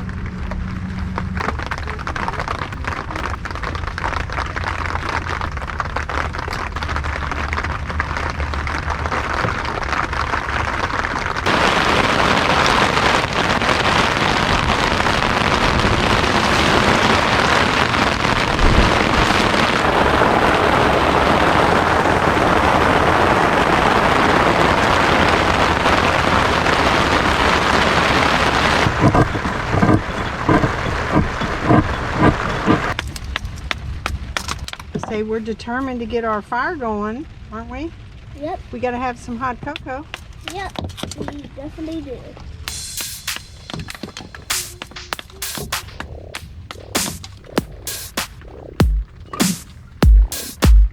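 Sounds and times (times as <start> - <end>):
rain falling: 0.0 - 50.9.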